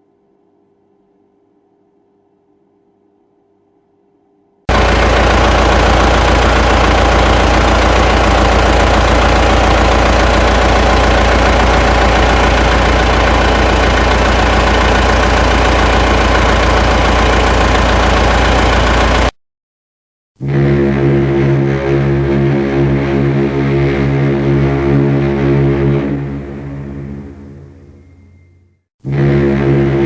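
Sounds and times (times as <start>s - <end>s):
engine idling: 4.7s - 19.4s.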